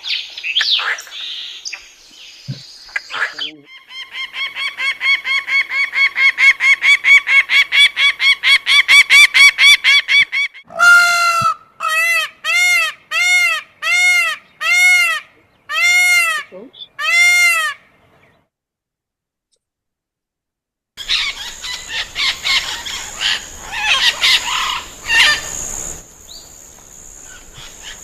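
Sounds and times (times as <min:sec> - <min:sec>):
honking bird calls: 0:09.4 - 0:18.1, 0:21.0 - 0:26.0.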